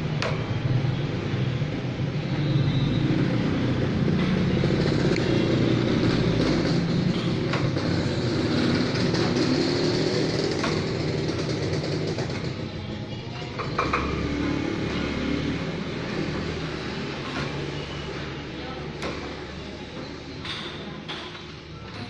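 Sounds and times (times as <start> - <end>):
motor engine rumbling: 0.0 - 22.0.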